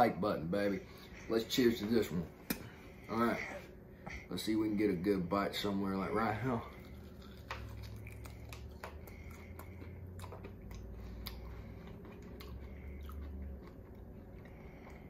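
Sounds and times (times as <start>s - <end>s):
low steady hum: 0.0s - 15.0s
person chewing meat: 6.7s - 15.0s.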